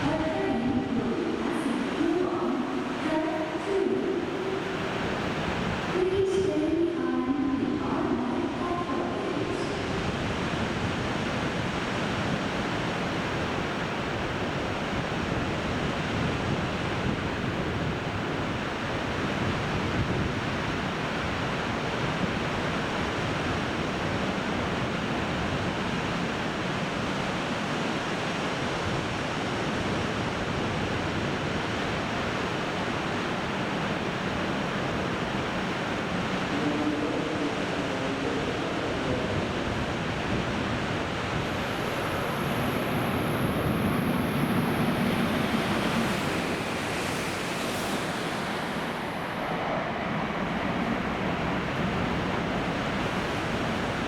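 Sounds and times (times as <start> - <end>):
strong wind on microphone: 0.0 - 54.0.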